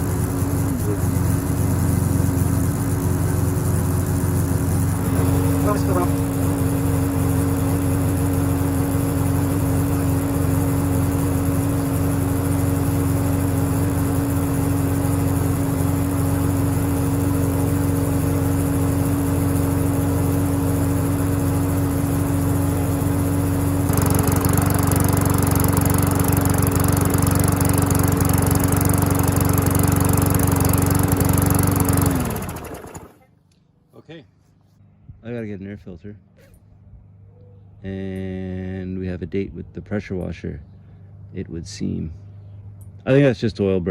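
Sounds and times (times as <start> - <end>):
lawnmower engine running: 0.0 - 33.3.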